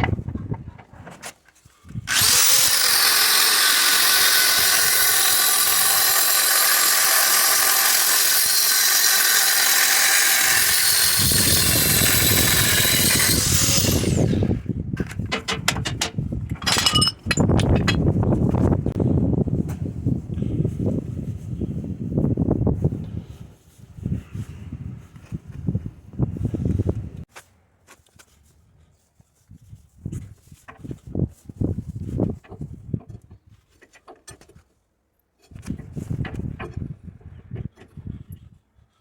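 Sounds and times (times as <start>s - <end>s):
power tool whining: 2.0s - 14.6s
sharp clicks and knocks: 15.0s - 18.1s.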